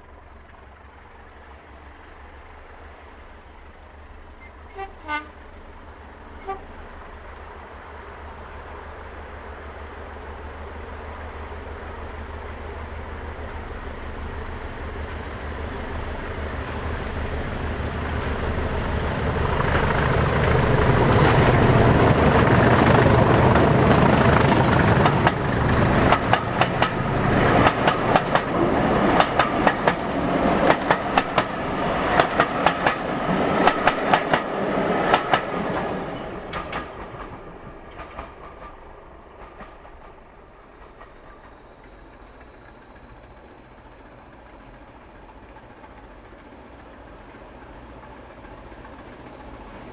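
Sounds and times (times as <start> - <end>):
diesel locomotive engine drone: 0.0 - 49.9
train wheels clattering over rail joints: 22.6 - 49.9.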